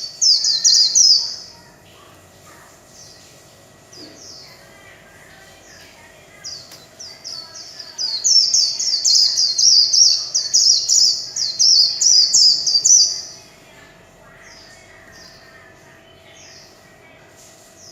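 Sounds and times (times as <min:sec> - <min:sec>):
bird warbling song: 0:00.0 - 0:13.5.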